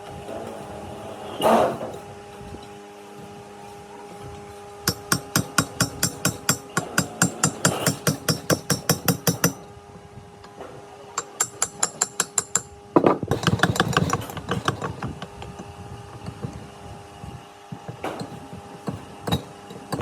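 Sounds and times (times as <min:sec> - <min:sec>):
hammer blows on metal: 0:04.8 - 0:09.6.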